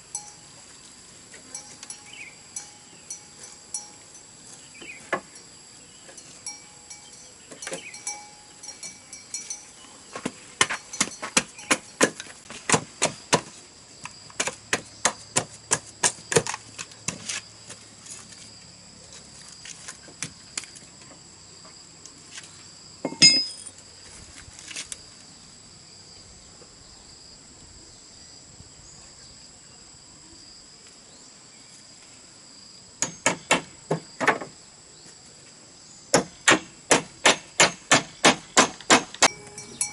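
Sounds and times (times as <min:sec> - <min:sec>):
insect drone: 0:00.0 - 0:39.9
tool striking bamboo: 0:10.2 - 0:13.6, 0:23.0 - 0:23.7, 0:33.0 - 0:34.5, 0:36.1 - 0:39.5.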